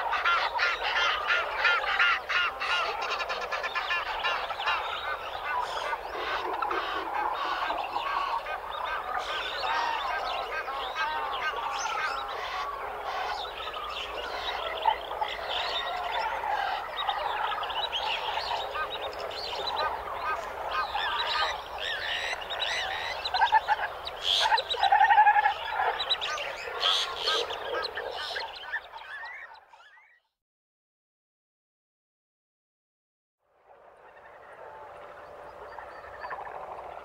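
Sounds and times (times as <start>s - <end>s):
birds calling and chirping: 0.0s - 30.3s, 33.9s - 37.0s.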